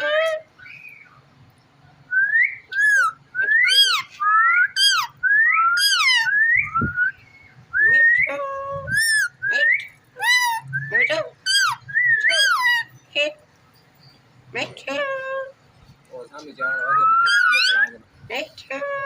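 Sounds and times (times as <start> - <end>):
parrot whistling: 2.1 - 7.2, 8.9 - 12.9, 16.6 - 18.0.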